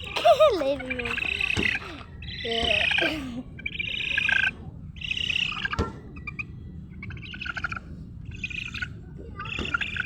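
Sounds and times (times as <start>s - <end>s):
small bird chirping: 7.0s - 10.0s.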